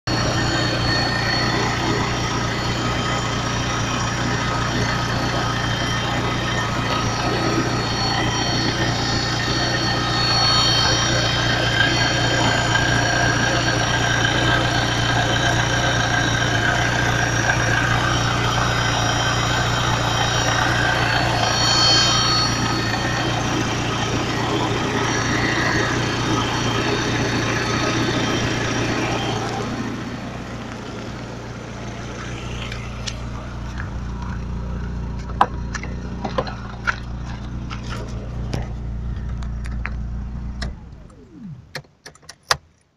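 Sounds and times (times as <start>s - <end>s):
car engine running: 0.0s - 42.0s
low hum with clicks: 30.4s - 42.9s.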